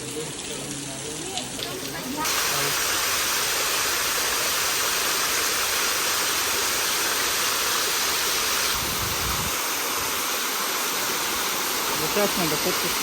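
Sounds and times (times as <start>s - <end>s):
falling water hissing: 0.0s - 13.0s.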